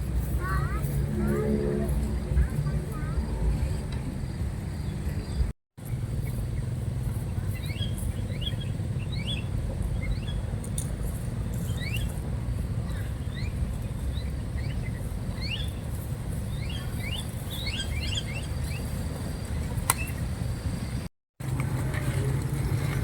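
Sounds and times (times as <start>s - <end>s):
steady low rumble: 0.0s - 23.0s
small birds chirping: 3.0s - 5.5s, 6.2s - 10.5s, 11.6s - 12.2s, 12.8s - 21.0s.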